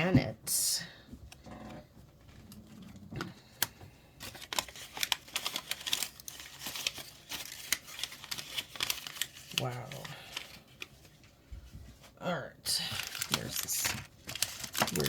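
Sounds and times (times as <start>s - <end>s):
plastic packaging crinkling: 2.2s - 11.3s, 12.8s - 15.0s.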